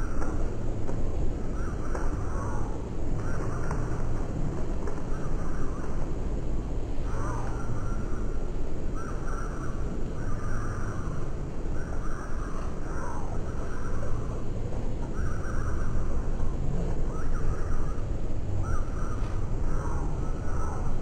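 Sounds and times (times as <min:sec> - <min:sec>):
low outdoor rumble: 0:00.0 - 0:21.0
harsh bird calls: 0:17.0 - 0:21.0.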